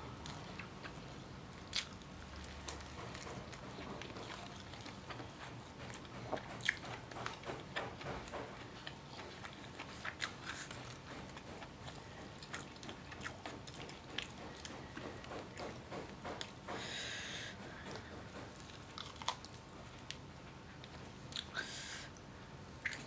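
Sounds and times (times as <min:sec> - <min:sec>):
person chewing food: 0:00.1 - 0:23.0.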